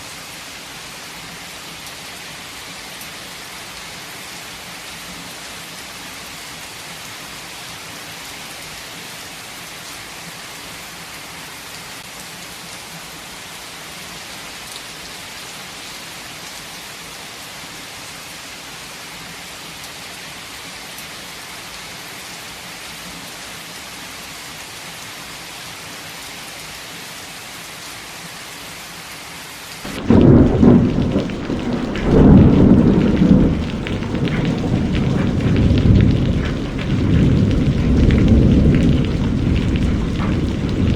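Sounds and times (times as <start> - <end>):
heavy rain hissing: 24.0 - 40.9
thunder rumbling: 29.9 - 40.9.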